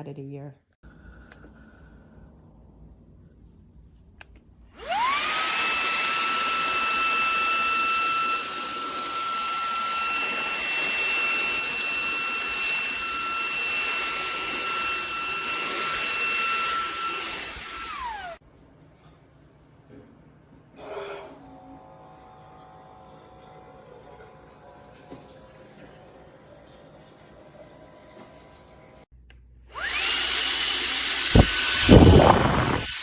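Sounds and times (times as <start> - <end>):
handheld vacuum motor whine: 4.8 - 18.4, 29.7 - 33.0.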